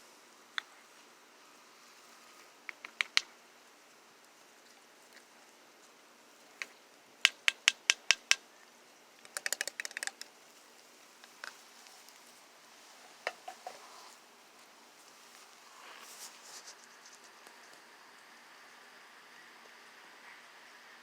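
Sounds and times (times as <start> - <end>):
sharp clicks: 2.7 - 3.3, 9.2 - 10.3.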